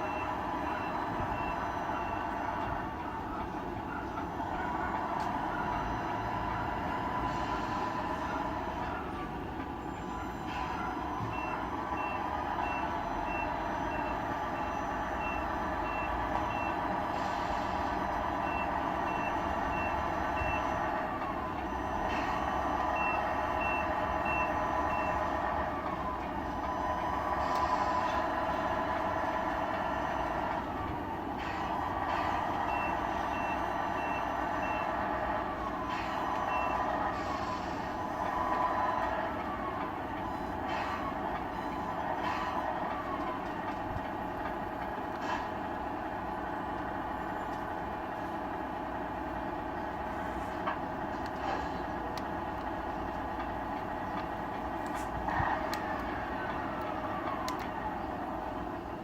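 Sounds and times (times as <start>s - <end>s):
reversing beeps: 0.0s - 4.2s, 9.8s - 26.0s, 32.5s - 37.8s
simulated truck engine revving: 0.0s - 59.0s.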